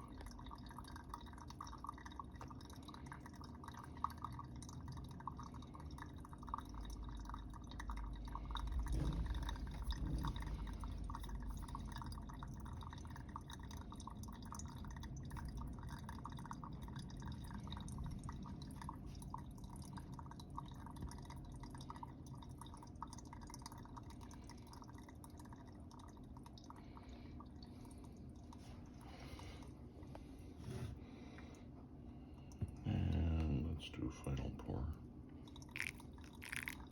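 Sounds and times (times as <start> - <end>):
coffee dripping through filter: 0.0 - 36.9
low rumble: 7.9 - 13.0.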